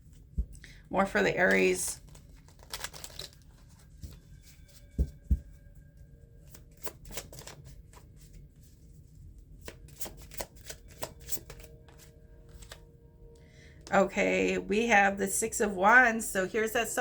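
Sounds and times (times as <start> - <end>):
cards being shuffled: 1.5 - 5.4, 6.4 - 8.7, 9.5 - 12.9.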